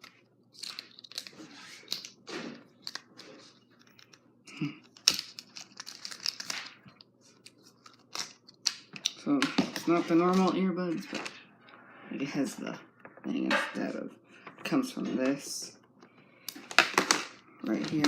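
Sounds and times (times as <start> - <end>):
plastic packaging crinkling: 4.9 - 8.7.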